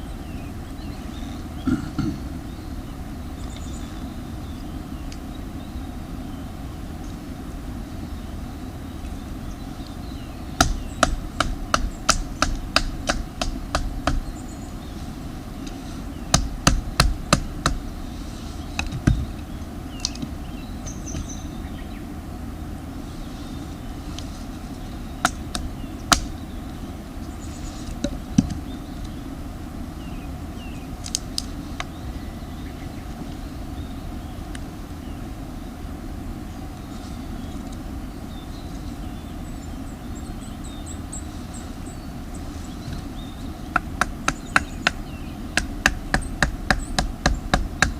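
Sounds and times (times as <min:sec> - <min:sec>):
steady low rumble: 0:00.0 - 0:47.9
wood chopping knocks: 0:10.6 - 0:14.2, 0:16.4 - 0:17.8.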